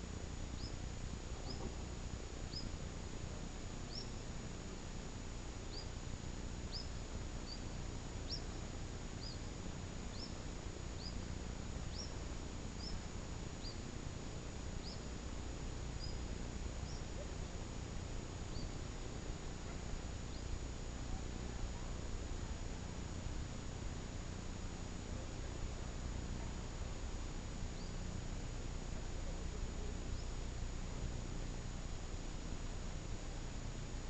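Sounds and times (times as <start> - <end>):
steady low rumble: 0.0 - 34.0
bird chirping: 0.6 - 0.8, 1.4 - 1.7, 2.5 - 2.8, 3.9 - 4.2, 5.7 - 6.0, 6.6 - 8.6, 9.2 - 9.5, 10.1 - 10.4, 11.0 - 13.0, 13.6 - 13.9, 14.8 - 15.1, 15.9 - 17.3, 18.5 - 18.8, 19.7 - 20.6, 27.8 - 28.0.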